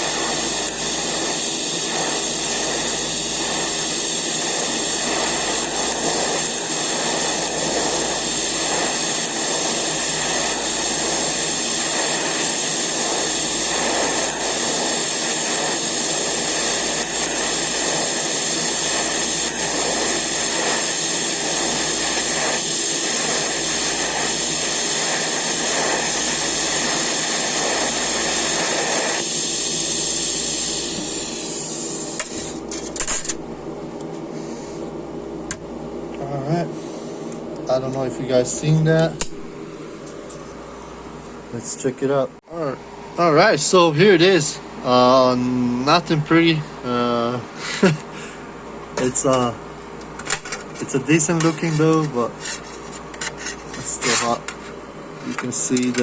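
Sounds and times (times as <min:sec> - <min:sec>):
welding arc hissing: 0:00.0 - 0:33.5, 0:49.0 - 0:54.6, 0:55.2 - 0:56.0.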